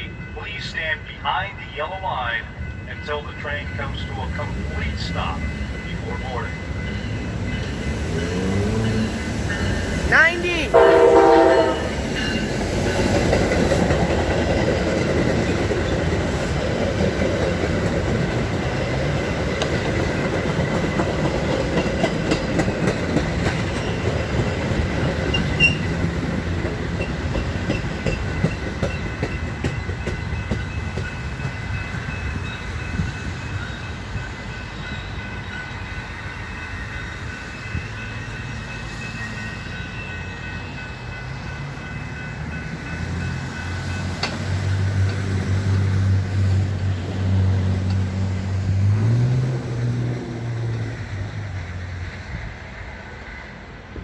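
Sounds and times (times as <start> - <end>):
train rumble: 0.0 - 54.0
wheels clacking over rail joints: 10.8 - 33.2, 41.2 - 45.9.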